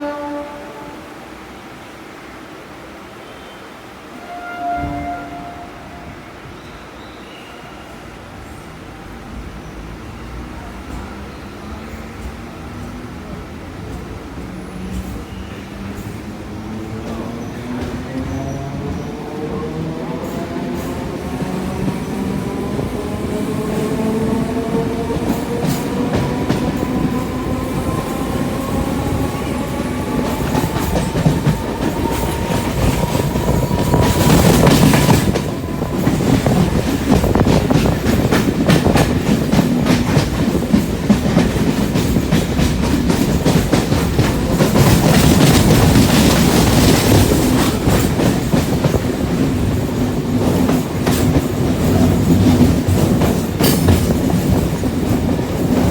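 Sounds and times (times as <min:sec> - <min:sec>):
train whine rising in pitch: 0:19.6 - 0:37.4
train wheels clattering over rail joints: 0:24.8 - 0:55.9.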